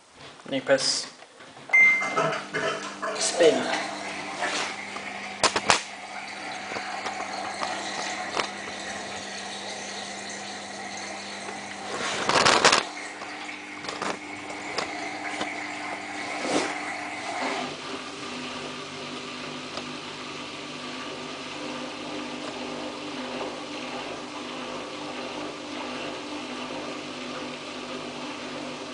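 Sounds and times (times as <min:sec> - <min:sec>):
washing machine spinning: 0:01.6 - 0:28.9.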